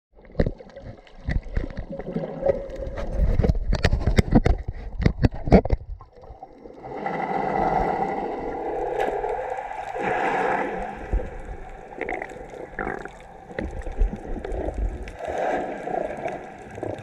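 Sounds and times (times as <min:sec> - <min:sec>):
sharp underwater clicks and knocks: 0:00.2 - 0:06.3
steady underwater rushing: 0:00.2 - 0:17.0.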